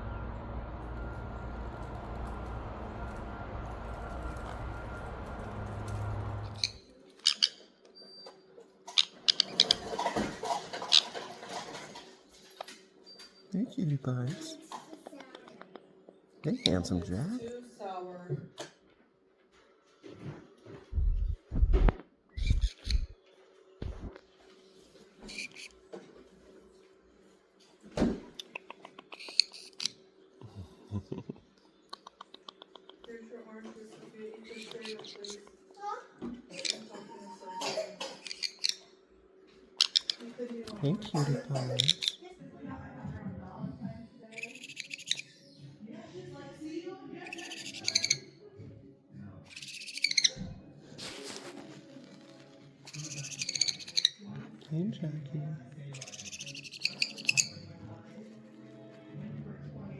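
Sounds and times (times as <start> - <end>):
steady low hum: 0.0 - 6.8, 20.9 - 23.2
parrot clicks and chirps: 6.5 - 7.6, 22.4 - 23.2, 28.4 - 30.0, 31.9 - 33.2
parrot beak clicking and chewing: 8.9 - 11.8, 22.4 - 23.2, 28.4 - 30.0, 31.9 - 33.2, 34.4 - 35.6, 38.1 - 38.8, 39.8 - 40.8, 41.6 - 42.2, 56.0 - 57.6.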